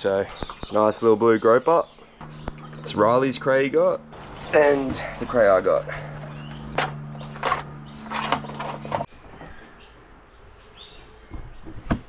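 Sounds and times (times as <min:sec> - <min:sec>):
steady low hum: 0:02.0 - 0:09.1.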